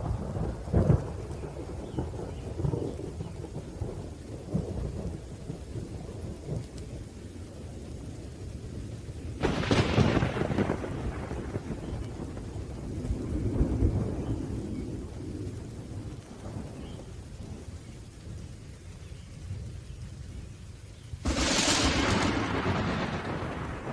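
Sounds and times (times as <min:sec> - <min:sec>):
low rumbling thunder: 0:00.0 - 0:23.9
steady rain: 0:00.0 - 0:23.9
sharp thunderclap: 0:09.4 - 0:16.8, 0:21.2 - 0:23.9.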